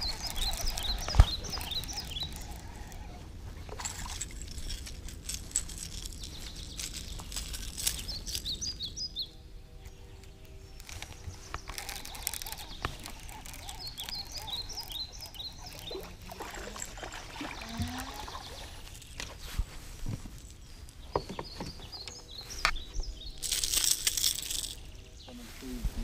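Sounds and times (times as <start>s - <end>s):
fishing reel and rod clicks: 0.0s - 3.1s, 10.8s - 17.0s, 23.4s - 24.8s
birds chirping: 0.0s - 4.9s, 5.6s - 26.0s
fish splashing in water: 11.8s - 18.8s.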